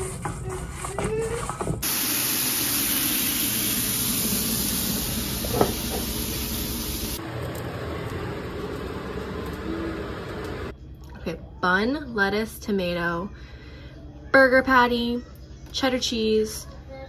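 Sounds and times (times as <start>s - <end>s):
burger patties sizzling in pan: 1.8s - 7.2s.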